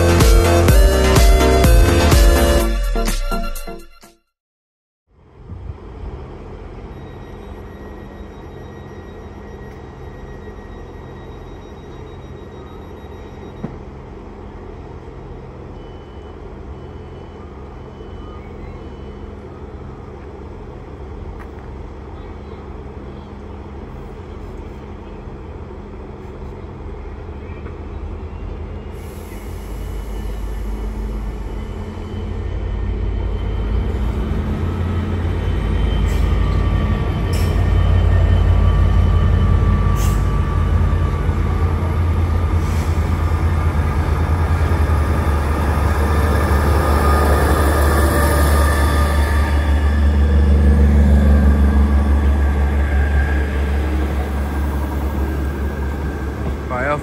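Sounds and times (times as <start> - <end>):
train engine hum: 5.1 - 57.0
faint rising whine: 29.5 - 57.0.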